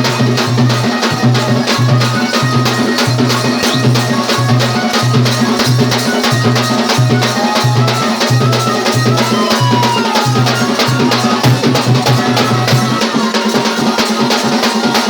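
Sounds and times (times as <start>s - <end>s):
fast dense drumming: 0.0s - 15.0s.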